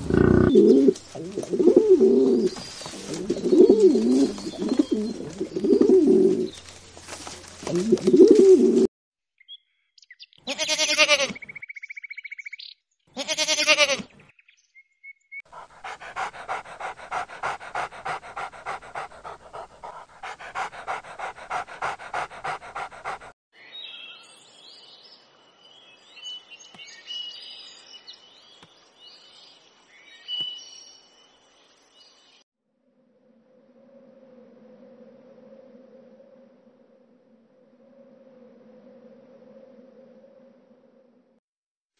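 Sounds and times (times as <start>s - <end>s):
pigeon cooing: 0.0s - 6.6s, 7.6s - 8.9s
dog calling: 15.5s - 23.3s
dog panting: 15.5s - 23.4s.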